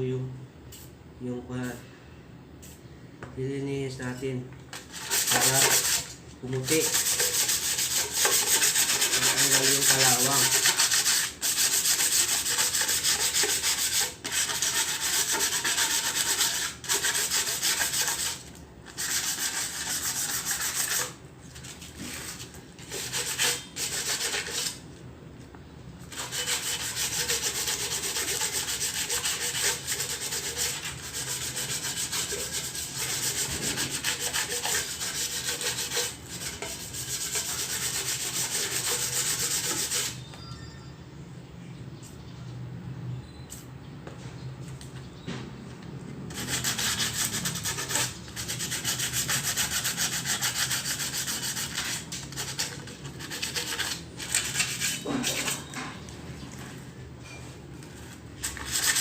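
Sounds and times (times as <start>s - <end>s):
sandpaper scraping metal: 4.8s - 24.8s, 26.1s - 40.2s, 46.3s - 55.7s, 58.4s - 59.0s.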